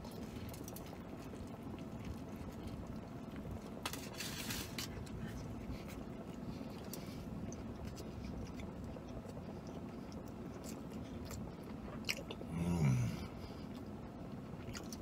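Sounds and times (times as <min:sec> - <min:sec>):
person chewing with wet smacks: 0:00.0 - 0:03.8, 0:04.9 - 0:12.5, 0:13.3 - 0:15.0
person humming with full mouth: 0:12.5 - 0:13.3.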